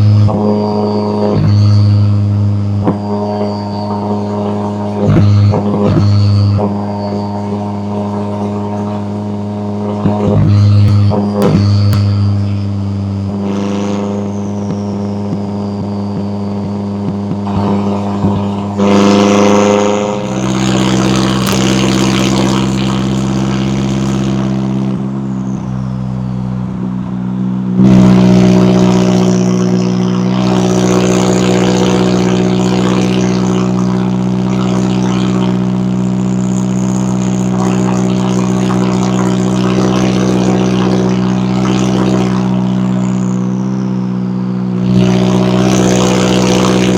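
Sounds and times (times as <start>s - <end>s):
car exhaust note: 0.0s - 46.9s.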